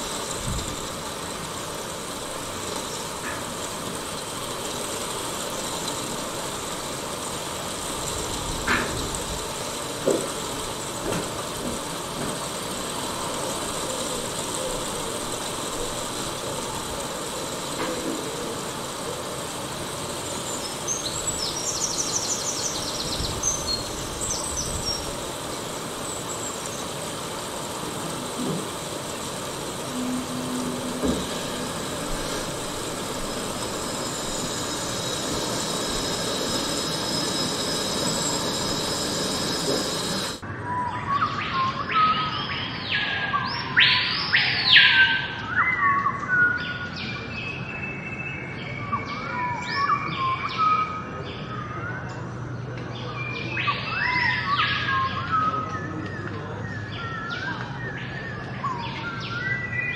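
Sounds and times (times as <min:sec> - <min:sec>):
background hiss: 0:00.0 - 0:40.4
sweeping whistled calls: 0:00.0 - 0:59.9
birds chirping: 0:12.3 - 0:59.9.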